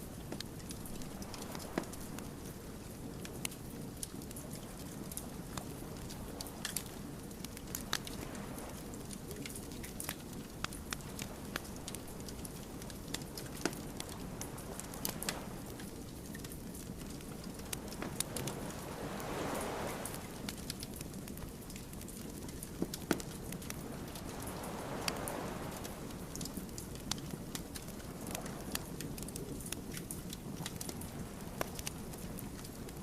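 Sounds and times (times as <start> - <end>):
soft whoosh of fire: 0.0 - 33.0
wood fire crackling: 0.0 - 33.0
rush of flame: 10.7 - 29.9.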